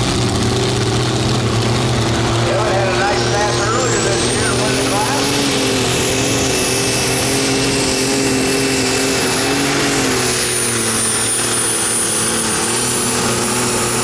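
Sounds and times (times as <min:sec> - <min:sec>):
pulling tractor engine drone: 0:00.0 - 0:14.0
thin high whine: 0:02.5 - 0:06.7.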